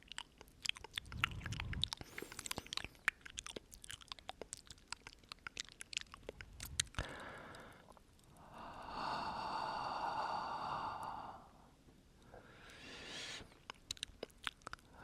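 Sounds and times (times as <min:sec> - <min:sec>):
wet mouth clicks and smacks: 0:00.0 - 0:08.3, 0:13.2 - 0:15.0.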